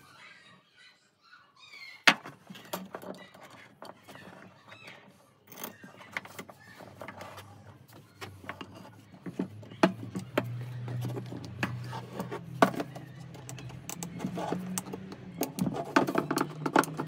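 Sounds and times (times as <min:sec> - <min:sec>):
irregular clicks and knocks: 0:08.2 - 0:17.0.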